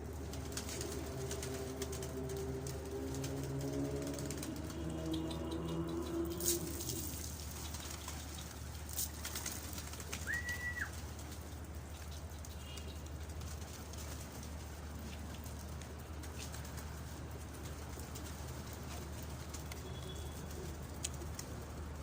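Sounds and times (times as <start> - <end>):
pigeons cooing: 0.7 - 8.2.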